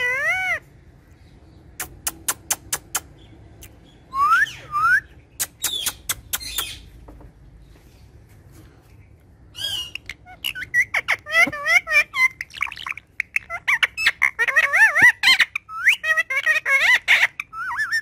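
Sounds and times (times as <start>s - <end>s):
parakeet chirping: 0.0s - 0.7s, 1.5s - 7.0s, 9.5s - 18.0s
parakeet harsh calls: 0.0s - 0.7s, 9.6s - 18.0s.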